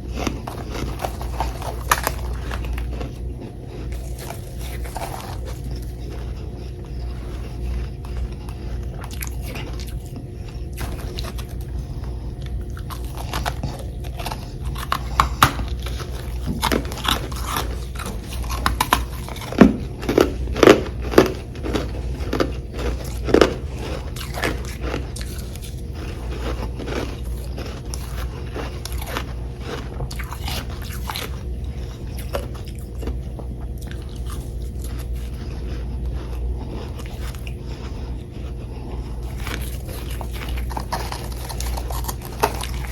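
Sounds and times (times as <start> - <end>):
person chewing crunchy frost: 0.0 - 42.9
steady low hum: 0.0 - 42.9.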